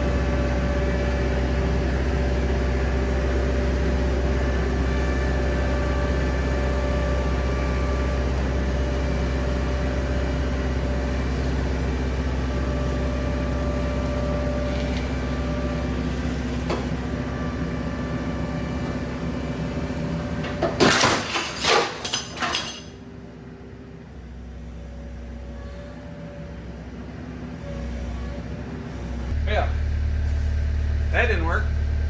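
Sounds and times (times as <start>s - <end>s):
skid steer engine running: 0.0s - 21.0s, 23.0s - 32.0s
metal clanks and bangs: 20.4s - 23.0s.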